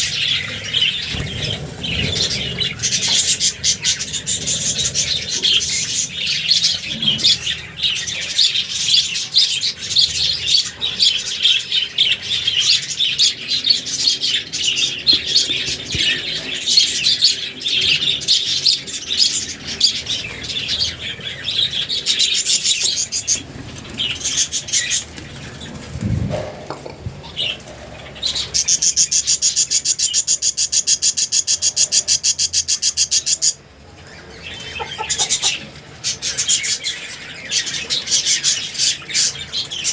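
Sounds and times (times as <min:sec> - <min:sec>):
budgerigars chirping and chattering: 0:00.0 - 0:39.9
wings fluttering: 0:00.7 - 0:07.4, 0:23.1 - 0:28.7.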